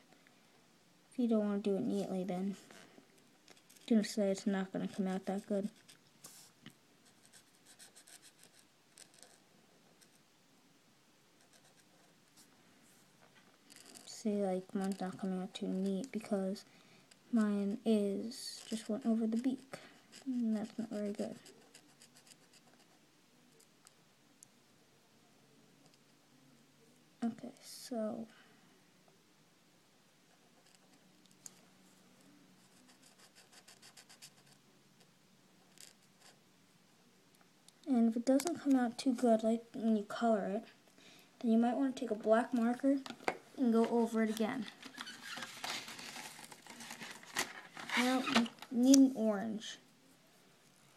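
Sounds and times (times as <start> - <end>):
marker scratching on paper: 4.9 - 9.4, 32.6 - 34.6
pen scratching on paper: 4.9 - 9.4, 11.4 - 12.1, 13.7 - 15.2, 18.6 - 23.0, 32.6 - 34.6.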